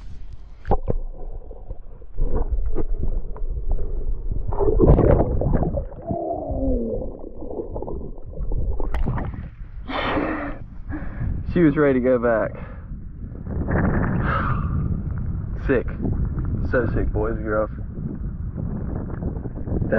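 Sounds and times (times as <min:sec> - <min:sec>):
water sloshing and gurgling: 0:00.0 - 0:11.5
falling moan: 0:06.0 - 0:07.5.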